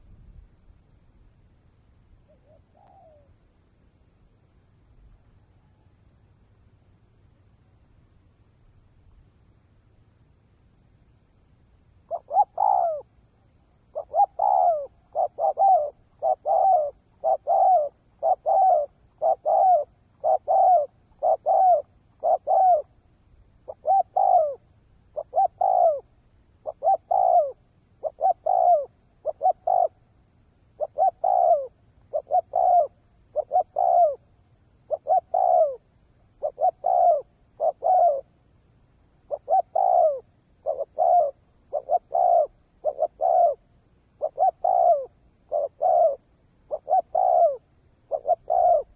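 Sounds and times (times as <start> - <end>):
dove cooing: 2.2 - 3.4, 12.1 - 23.0, 23.6 - 30.1, 30.7 - 38.3, 39.2 - 48.9.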